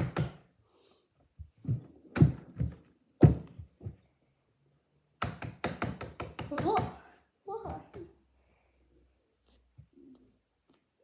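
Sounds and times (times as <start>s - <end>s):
dull thumps and knocks: 1.4s - 4.0s.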